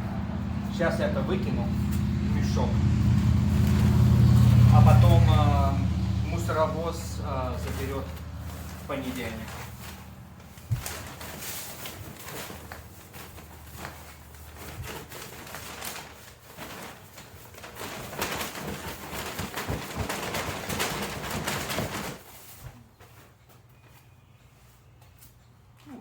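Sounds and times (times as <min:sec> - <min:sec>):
dry debris rustling in bag: 0:06.6 - 0:22.6.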